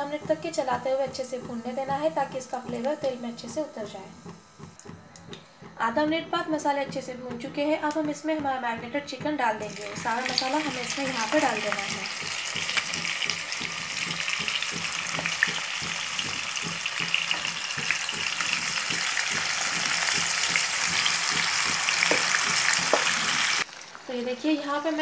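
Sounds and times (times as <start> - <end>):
chicken sizzling in oil: 9.7 - 25.0.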